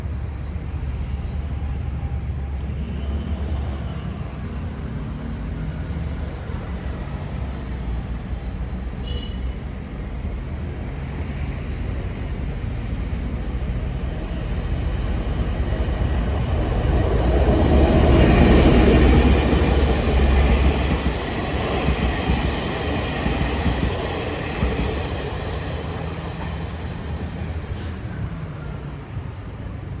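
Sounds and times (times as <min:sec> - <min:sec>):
locomotive engine drone: 0:09.6 - 0:30.0.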